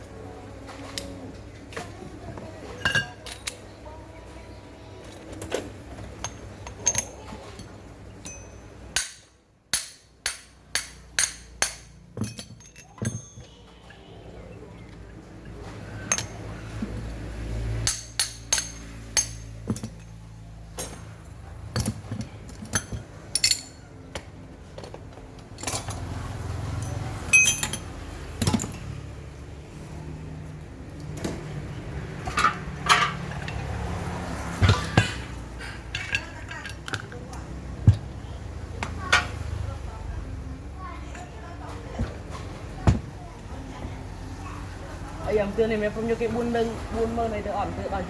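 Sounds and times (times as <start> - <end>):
metal tools clinking: 2.7 - 3.8, 5.1 - 13.7, 16.0 - 17.0, 17.8 - 24.0, 24.8 - 29.0, 32.3 - 37.2.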